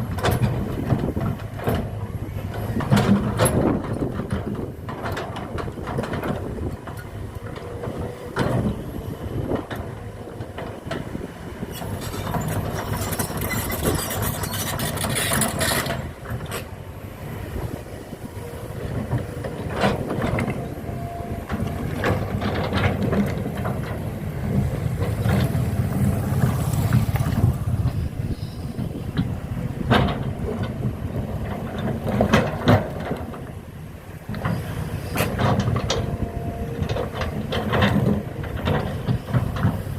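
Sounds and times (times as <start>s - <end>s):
heavy engine rumbling: 0.0s - 39.9s
knocks and clanks: 28.8s - 33.5s.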